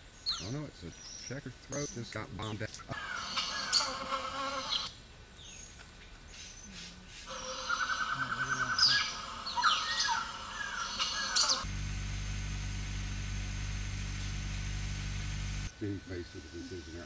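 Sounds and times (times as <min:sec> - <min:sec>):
bird trilling: 0:00.3 - 0:05.7, 0:06.3 - 0:11.7.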